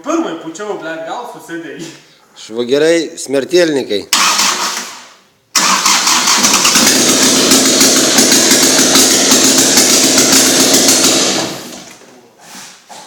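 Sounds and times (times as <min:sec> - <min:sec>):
car engine clattering and winding down: 0:05.6 - 0:11.9.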